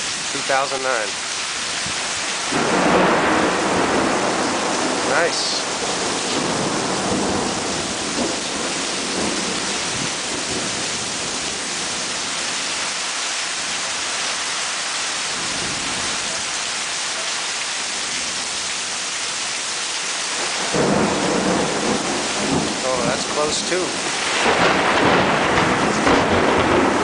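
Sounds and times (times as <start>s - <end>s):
heavy rain falling: 0.0s - 27.0s
thunder rumble: 1.8s - 12.4s, 20.4s - 27.0s.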